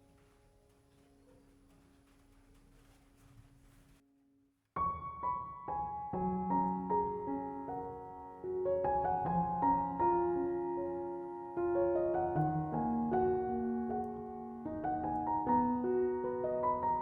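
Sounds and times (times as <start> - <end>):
gentle piano melody: 4.8 - 17.0.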